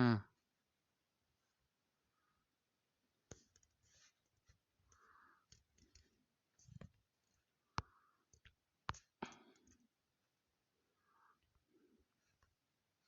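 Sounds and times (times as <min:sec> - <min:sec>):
computer mouse clicking: 0:04.9 - 0:09.8.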